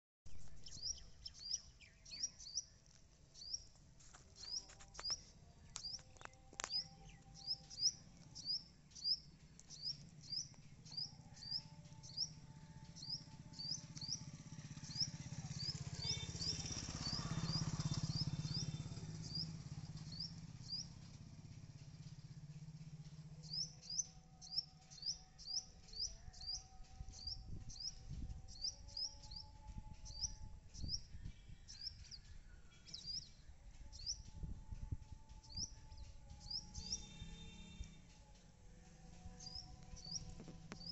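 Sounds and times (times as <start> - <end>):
bird chirping: 0.3 - 21.1, 35.4 - 38.0.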